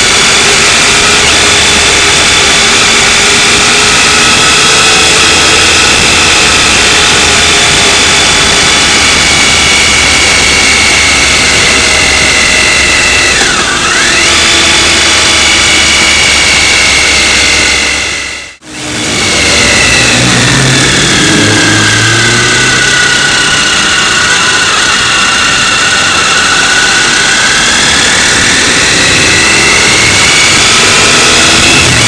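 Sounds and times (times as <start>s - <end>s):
motorcycle engine running: 0.0s - 32.0s
dense rushing noise: 18.6s - 32.0s.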